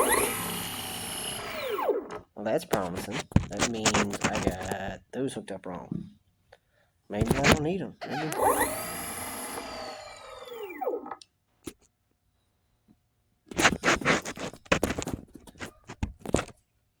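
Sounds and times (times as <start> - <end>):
electric motor whining down: 0.0 - 2.2, 8.0 - 11.2
scraping and clicking handling: 2.8 - 4.8, 13.5 - 16.7.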